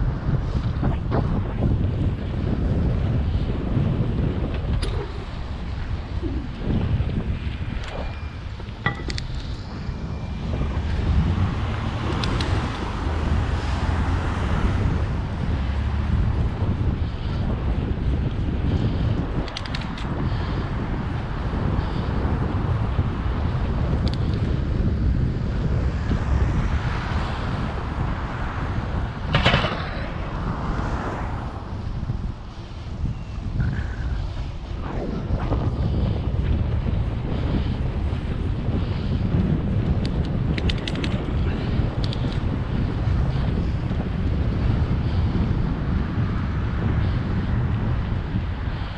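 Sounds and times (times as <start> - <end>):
low rumble from riding: 0.0 - 48.9
wind buffeting microphone: 0.0 - 48.9
sharp clicks and rattles: 19.4 - 20.1, 40.0 - 41.3, 42.0 - 42.4.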